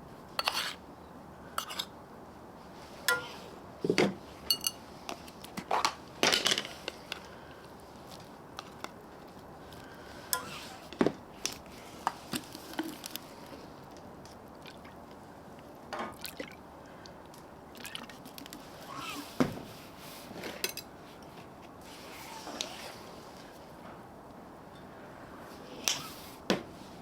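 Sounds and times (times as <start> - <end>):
utensils clicking on cookware: 3.1 - 3.4, 4.5 - 4.8.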